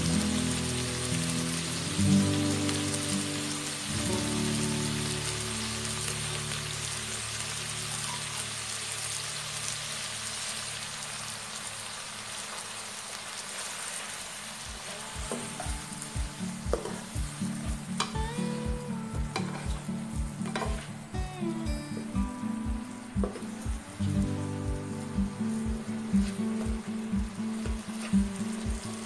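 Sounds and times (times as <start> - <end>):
food sizzling in a wok: 0.0 - 29.0
background music with steady beat: 14.6 - 29.0
spatula scraping a wok: 20.4 - 21.0.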